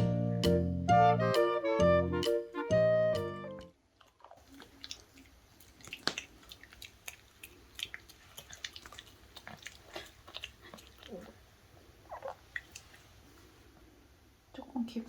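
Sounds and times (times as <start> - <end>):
puppy licking and chewing: 4.0 - 13.5.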